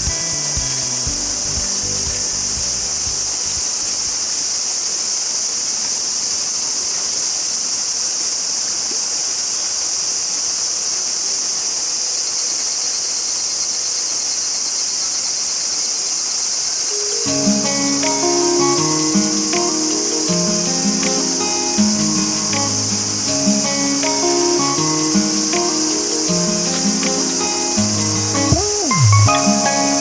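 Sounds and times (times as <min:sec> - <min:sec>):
even hiss: 0:00.0 - 0:04.7
high-pitched insect chorus: 0:00.0 - 0:04.8.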